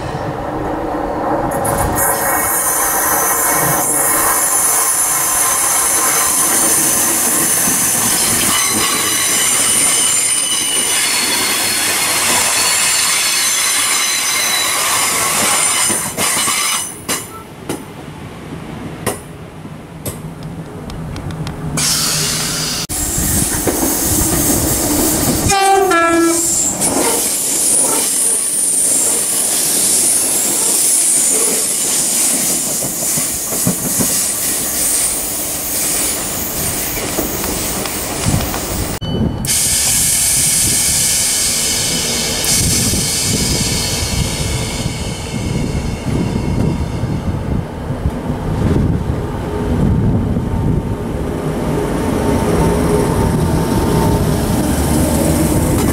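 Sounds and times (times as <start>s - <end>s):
train wheel squeal: 1.7s - 17.5s, 21.8s - 37.8s, 39.0s - 47.4s.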